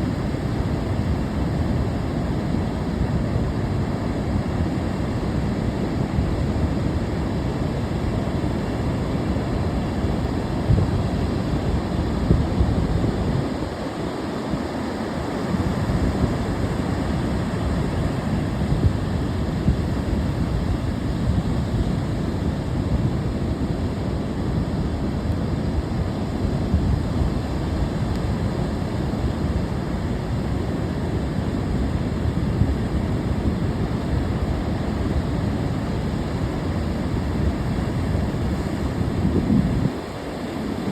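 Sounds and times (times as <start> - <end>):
ocean surf washing in: 0.0 - 40.9
wind buffeting microphone: 9.6 - 25.0, 25.6 - 40.9.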